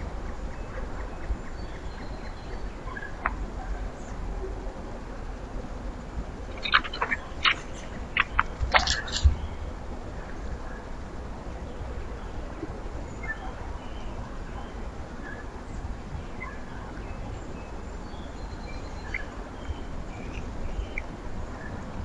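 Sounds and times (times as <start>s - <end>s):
low background rumble: 0.0s - 22.0s
small birds chirping: 5.8s - 10.8s, 13.1s - 22.0s.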